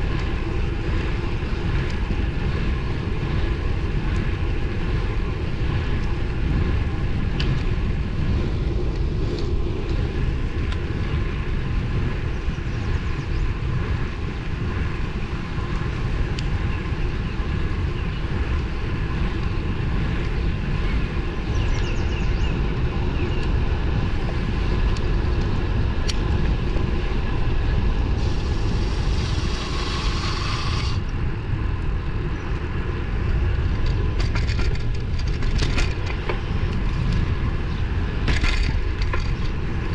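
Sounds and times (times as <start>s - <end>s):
road and tyre noise: 0.0s - 39.9s
wind buffeting microphone: 0.0s - 39.9s
burst of hiss: 28.2s - 31.0s.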